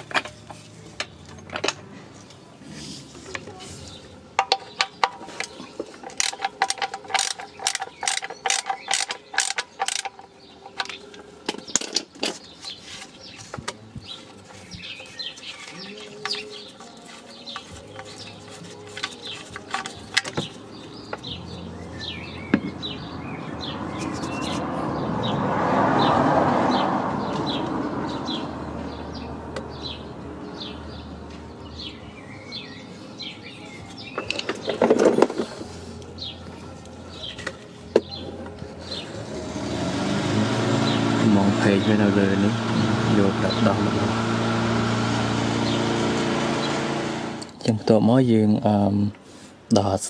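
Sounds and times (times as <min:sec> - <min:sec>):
birds chirping: 0:00.0 - 0:50.0
ratchet wrench clicking: 0:06.0 - 0:10.2.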